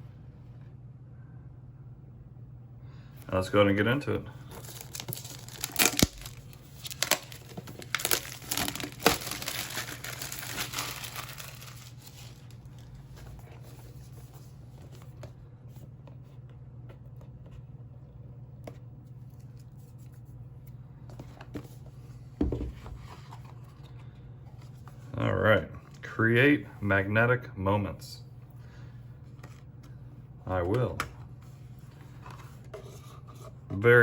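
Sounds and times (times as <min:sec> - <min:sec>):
packaging being torn open: 0:04.6 - 0:12.9.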